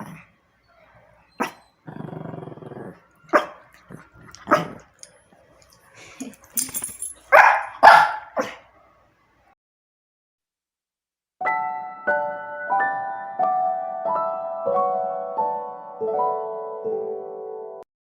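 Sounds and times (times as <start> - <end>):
dog growling: 0.0 - 0.3, 1.4 - 5.0
dogs barking: 1.4 - 1.7, 2.9 - 4.9, 7.2 - 8.8.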